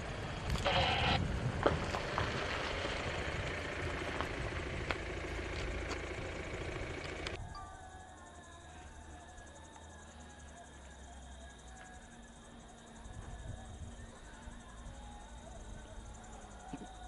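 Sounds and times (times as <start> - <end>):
engine running: 0.0 - 7.4.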